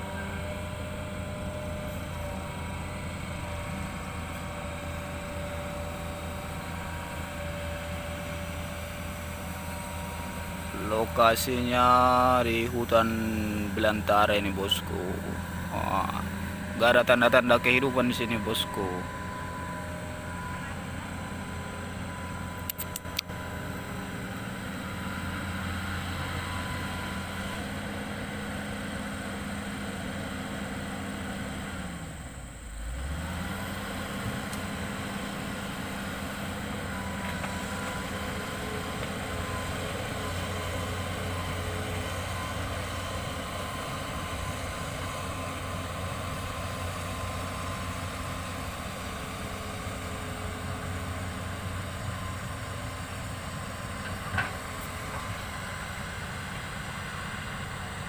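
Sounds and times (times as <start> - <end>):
excavator diesel engine running: 0.0 - 58.0
clicks: 22.6 - 23.3.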